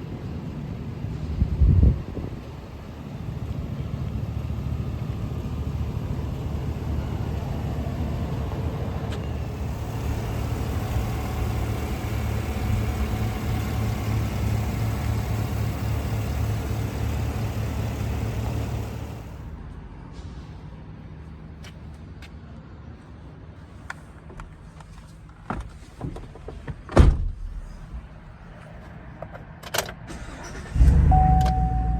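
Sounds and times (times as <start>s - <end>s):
truck engine idling: 0.0s - 19.6s.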